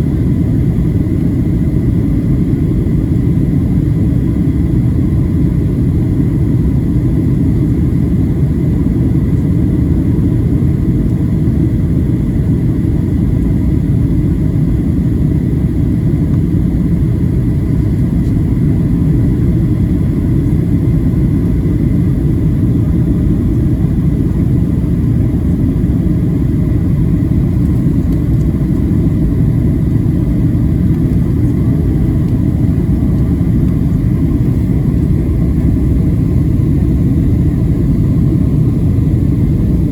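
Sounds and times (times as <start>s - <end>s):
airliner cabin rumble: 0.0s - 39.9s
faint steady whine: 0.0s - 39.9s.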